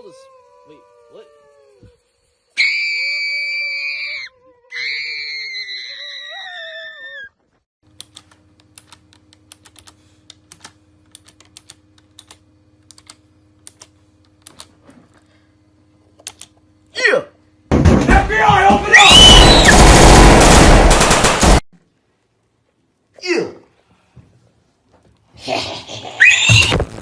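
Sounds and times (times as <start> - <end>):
faint steady hum: 0.0 - 26.2
high-pitched screams: 2.6 - 7.4, 18.8 - 19.8, 26.2 - 26.8
keyboard typing: 8.0 - 14.7.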